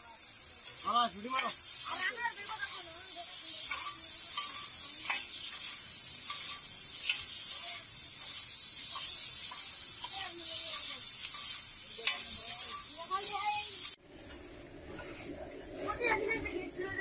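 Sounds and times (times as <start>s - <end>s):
food sizzling on a griddle: 0.0s - 14.0s
metal spatulas scraping and clinking: 3.6s - 13.2s.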